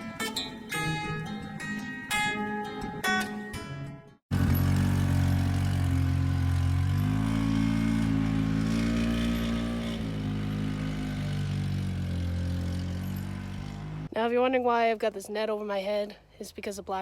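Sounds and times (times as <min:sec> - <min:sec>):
engine running: 0:04.3 - 0:14.1.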